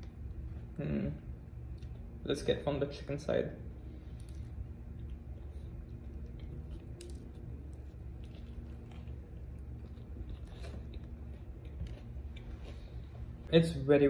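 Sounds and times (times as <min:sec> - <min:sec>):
low hum: 0:00.0 - 0:13.9
person chewing crispy sandwich: 0:04.0 - 0:13.5.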